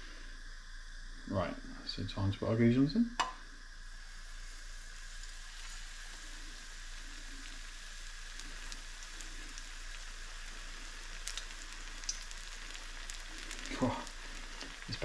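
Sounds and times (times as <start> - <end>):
fish frying in hot oil: 0.0 - 15.0.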